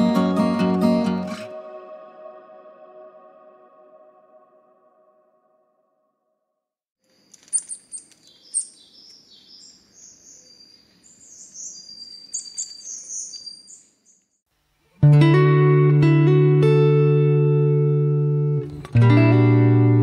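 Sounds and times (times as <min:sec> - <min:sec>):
plucked guitar tune: 0:00.0 - 0:05.0, 0:15.0 - 0:20.0
songbirds twittering: 0:07.3 - 0:14.4.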